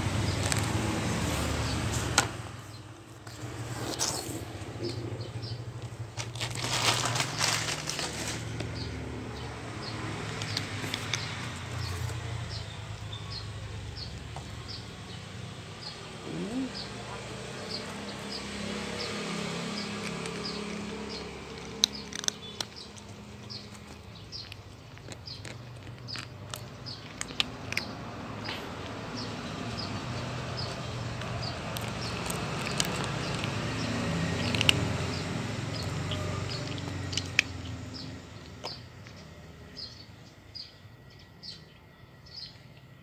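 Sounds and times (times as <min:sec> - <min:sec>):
cat chewing food: 0:10.0 - 0:12.8, 0:16.4 - 0:39.4.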